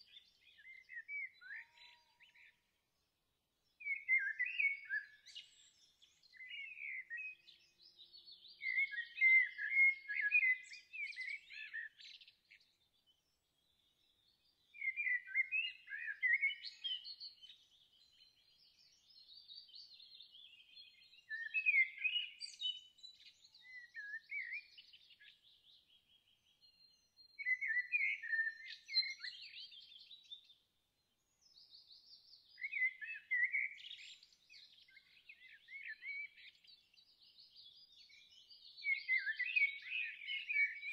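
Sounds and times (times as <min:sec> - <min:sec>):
songbirds warbling: 0:32.1 - 0:40.9.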